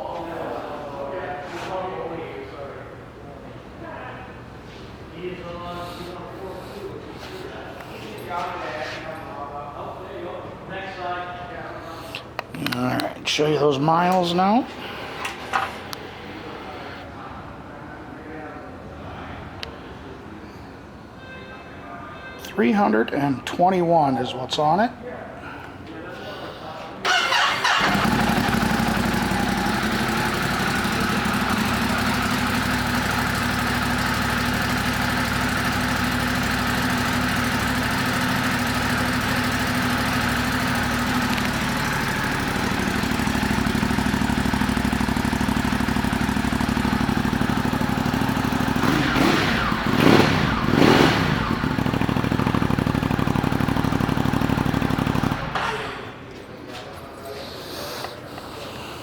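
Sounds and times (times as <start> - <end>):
motorcycle engine idling: 27.1 - 56.2.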